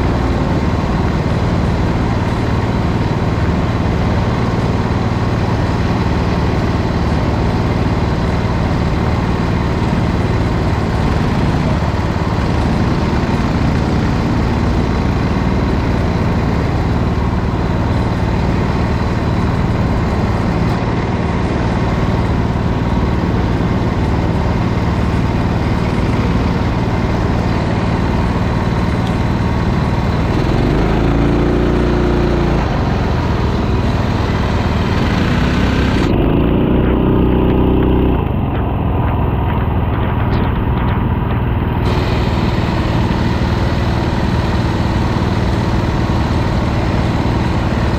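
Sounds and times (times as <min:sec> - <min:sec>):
kart engine running: 0:00.0 - 0:47.9.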